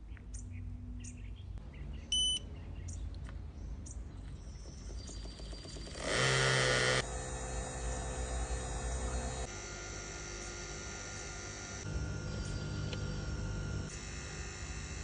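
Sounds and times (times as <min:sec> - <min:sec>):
electrical hum with whining tones: 0:05.8 - 0:15.0
loud electrical buzz: 0:06.0 - 0:15.0.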